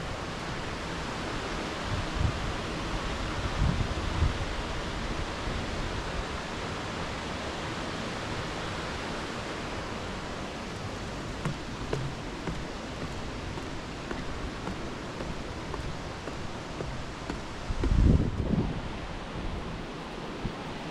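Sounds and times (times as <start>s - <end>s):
waterfall rushing: 4.5s - 18.3s
low thumps: 10.6s - 18.6s.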